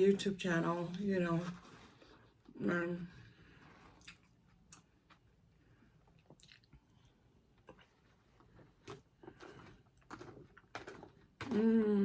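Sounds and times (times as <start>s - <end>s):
chewing food: 4.0s - 5.2s, 6.1s - 8.0s.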